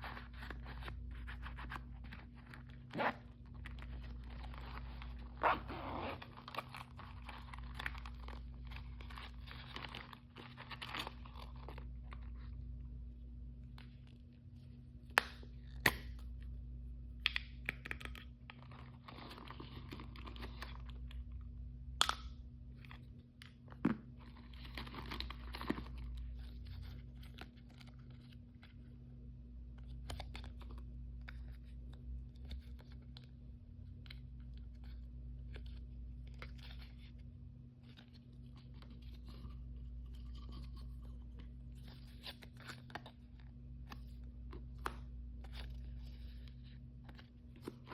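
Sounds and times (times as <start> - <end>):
steady low hum: 0.0 - 47.9
plastic packaging tearing and crinkling: 6.1 - 11.8.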